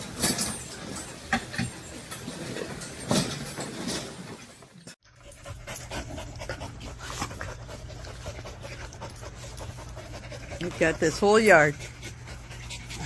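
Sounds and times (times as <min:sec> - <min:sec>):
dog panting: 0:05.1 - 0:13.0.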